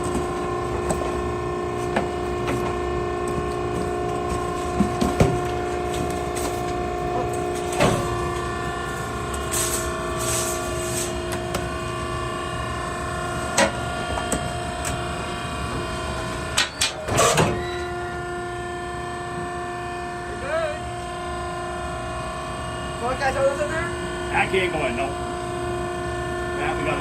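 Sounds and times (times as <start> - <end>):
hydraulic power unit humming: 0.0 - 27.0.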